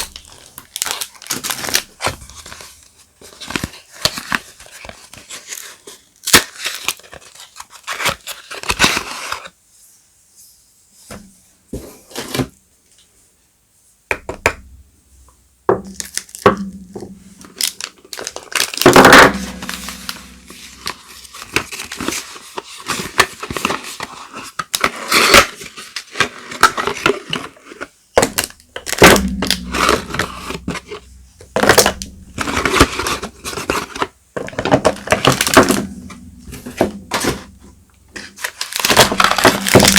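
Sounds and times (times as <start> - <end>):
wrappers tearing and crinkling: 0.0 - 2.7, 17.5 - 27.6, 38.2 - 39.9.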